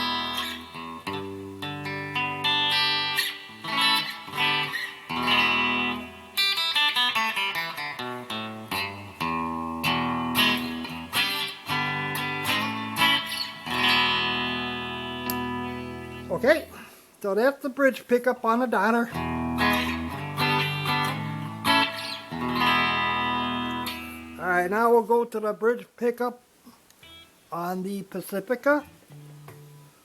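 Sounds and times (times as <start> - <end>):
clean electric guitar strumming: 0.0 - 16.8, 19.1 - 24.7, 27.0 - 27.3.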